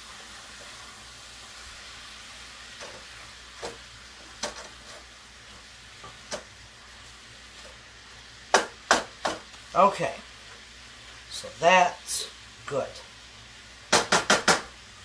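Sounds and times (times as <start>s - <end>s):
spatula stirring food: 0.0s - 8.0s
food sizzling in a skillet: 0.0s - 15.0s.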